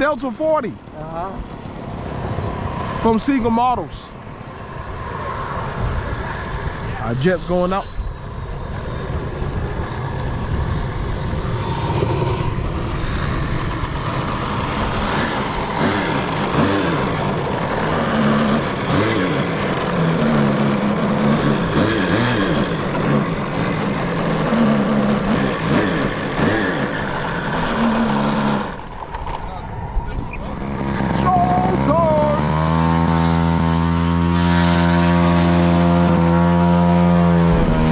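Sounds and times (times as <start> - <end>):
model jet engine whine: 0.0 - 37.9
rushing rumble: 7.8 - 32.0.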